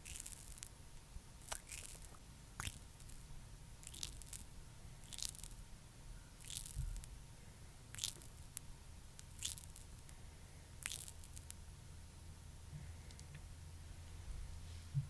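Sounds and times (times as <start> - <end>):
squishy cream being worked: 0.0 - 0.7, 1.4 - 5.6, 6.4 - 7.1, 7.9 - 8.6, 9.2 - 10.1, 10.8 - 11.6.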